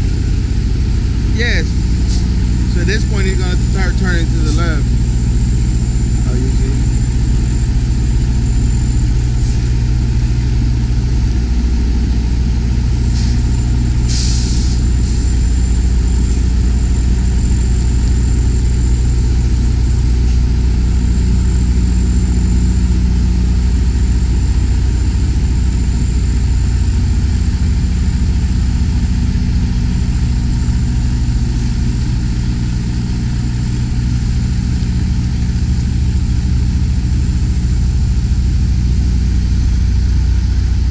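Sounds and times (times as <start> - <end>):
diesel engine idling: 0.0 - 40.9
air brake hiss: 13.1 - 13.4, 14.1 - 14.8.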